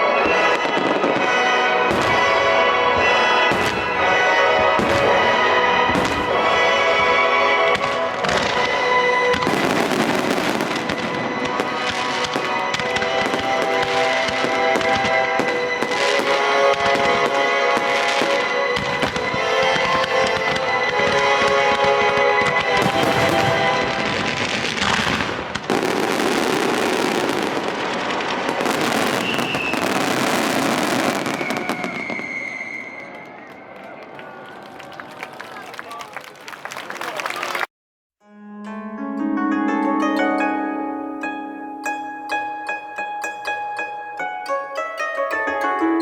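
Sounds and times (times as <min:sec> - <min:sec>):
music playing: 0:00.0 - 0:32.2, 0:38.3 - 0:46.0
fireworks popping and crackling: 0:00.0 - 0:34.1
faint thin whistle: 0:29.1 - 0:30.0, 0:31.2 - 0:33.4.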